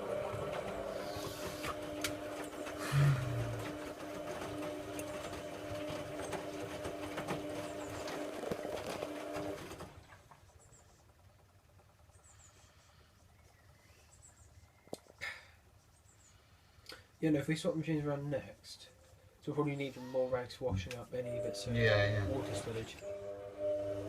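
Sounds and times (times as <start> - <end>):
inlet valve buzzing: 0.0 - 5.3, 20.8 - 24.0.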